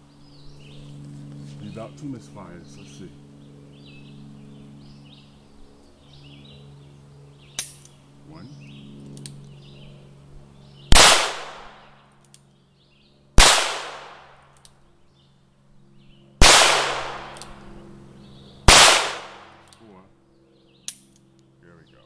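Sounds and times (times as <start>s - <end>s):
gunshots with echo: 11.0s - 11.9s, 13.4s - 14.4s, 16.4s - 17.5s, 18.7s - 19.6s.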